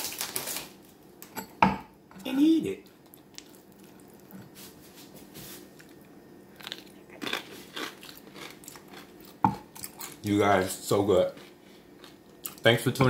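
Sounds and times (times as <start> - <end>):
person chewing crunchy chip: 5.8 - 10.3, 11.3 - 12.6.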